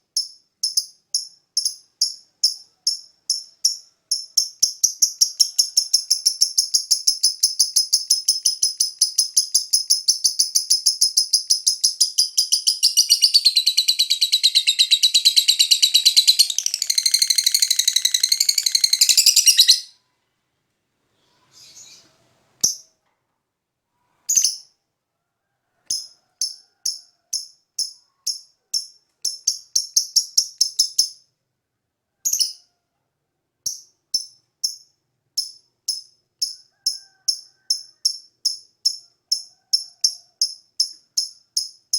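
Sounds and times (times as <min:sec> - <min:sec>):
lovebird chattering: 0:00.6 - 0:19.9.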